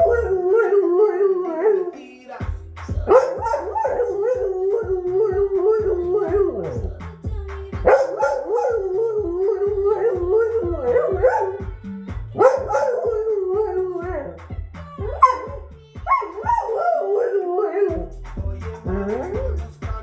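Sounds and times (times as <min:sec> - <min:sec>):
dog howling: 0:00.0 - 0:02.1, 0:03.1 - 0:06.9, 0:07.9 - 0:11.7, 0:12.4 - 0:14.4, 0:15.0 - 0:18.1
music with low beat: 0:00.0 - 0:20.0.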